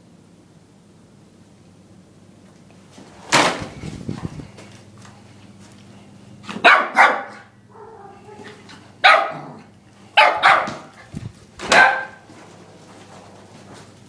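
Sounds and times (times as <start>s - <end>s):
puppy barking: 6.5s - 11.0s, 11.6s - 12.3s.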